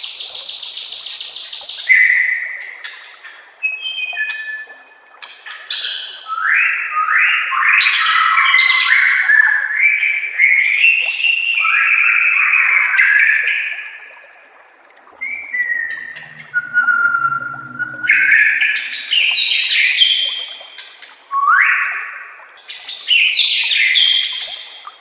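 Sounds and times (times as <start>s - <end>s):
bird singing quick rising notes: 15.2s - 19.6s.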